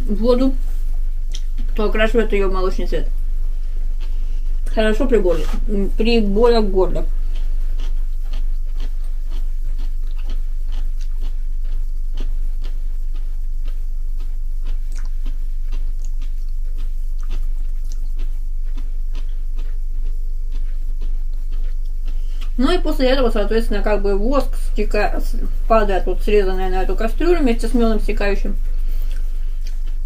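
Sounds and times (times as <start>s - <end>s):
low electrical hum: 0.0s - 30.0s
person chewing food: 0.7s - 1.8s, 3.1s - 4.7s, 6.3s - 22.6s, 28.6s - 30.0s.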